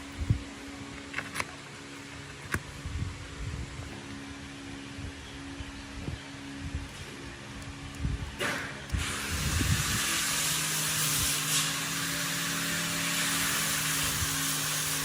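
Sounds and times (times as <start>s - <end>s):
low mechanical hum: 0.0s - 15.0s
steady hiss: 8.4s - 15.0s.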